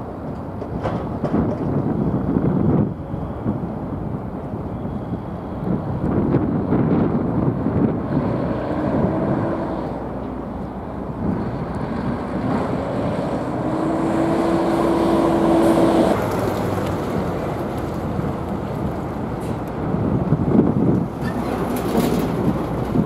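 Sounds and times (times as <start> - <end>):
ferry engine rumble: 0.0 - 23.0
wind buffeting microphone: 0.0 - 23.0
steady hum rising in pitch: 7.9 - 16.2.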